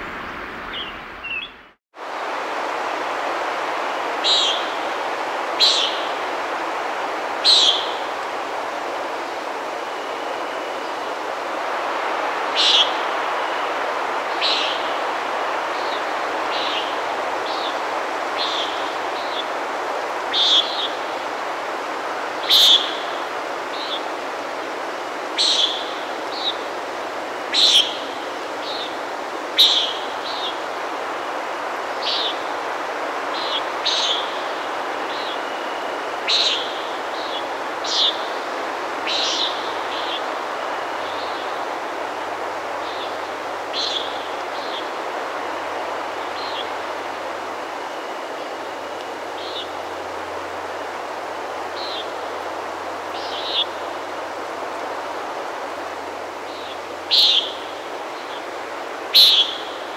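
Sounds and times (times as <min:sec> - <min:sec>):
small birds chirping: 0:00.0 - 0:01.8, 0:18.4 - 0:19.6, 0:33.3 - 0:40.3, 0:53.0 - 0:53.9, 0:56.5 - 0:59.9
steady rushing noise: 0:00.0 - 0:59.9.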